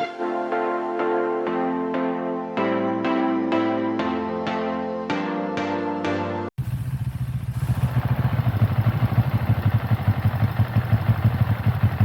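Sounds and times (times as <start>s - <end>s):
soft piano music: 0.0s - 6.5s
motorcycle engine running: 6.6s - 12.0s.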